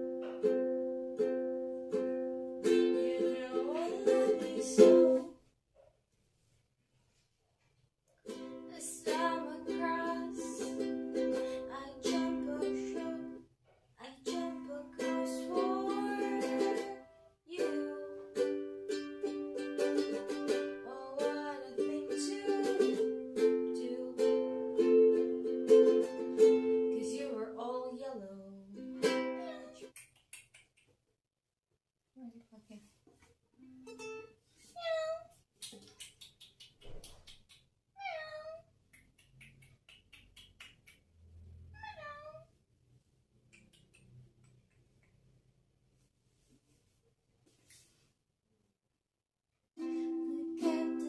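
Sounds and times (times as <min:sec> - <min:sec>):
ukulele strummed in chords: 0:00.0 - 0:05.3, 0:08.3 - 0:13.4, 0:14.2 - 0:27.6, 0:28.7 - 0:29.8, 0:49.8 - 0:51.0.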